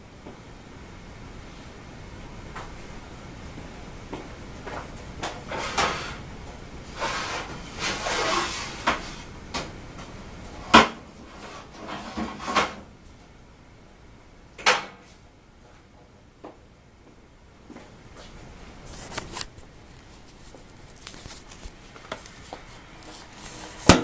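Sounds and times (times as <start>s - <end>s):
rustling and scraping: 4.6s - 6.3s, 6.9s - 9.4s, 10.0s - 12.8s, 18.2s - 24.0s.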